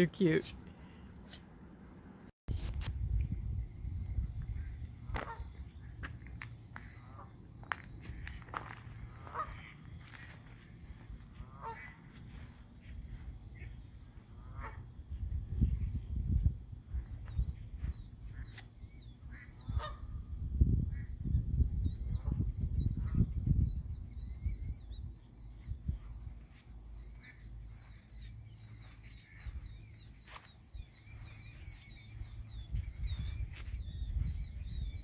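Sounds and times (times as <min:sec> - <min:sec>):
wind rumble on microphone: 0:02.5 - 0:26.5, 0:30.7 - 0:35.0
faint high chirping: 0:03.1 - 0:35.0
geese honking: 0:05.1 - 0:05.6, 0:08.5 - 0:10.4, 0:11.3 - 0:12.6, 0:13.5 - 0:15.0, 0:19.2 - 0:20.2.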